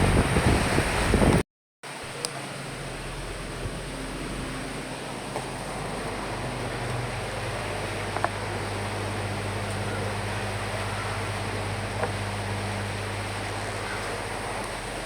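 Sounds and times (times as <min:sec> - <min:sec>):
wind drone: 0:00.0 - 0:01.4
rain against windows: 0:00.0 - 0:15.0.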